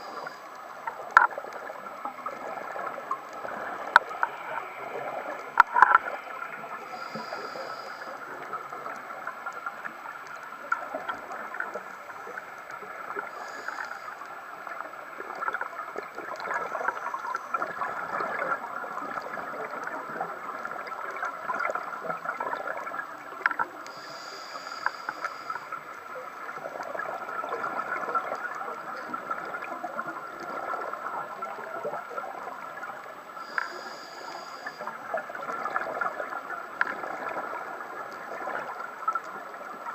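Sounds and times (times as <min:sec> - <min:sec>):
soft hiss: 0:00.0 - 0:39.9
underwater crackle of clicks: 0:00.0 - 0:39.9.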